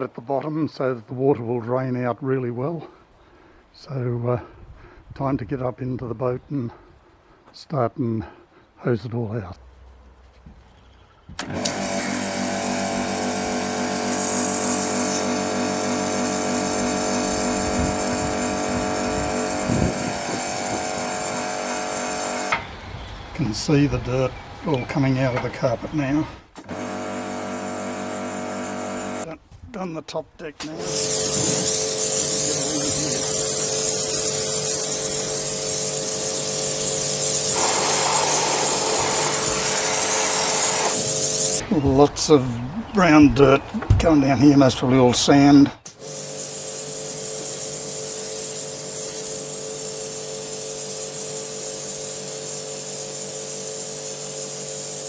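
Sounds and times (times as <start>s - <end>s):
water jet hissing: 11.4s - 22.5s, 26.7s - 29.3s, 30.7s - 41.6s, 45.9s - 55.0s
pressure washer pump humming: 11.4s - 22.6s, 26.6s - 29.3s, 30.6s - 41.6s, 45.9s - 55.0s.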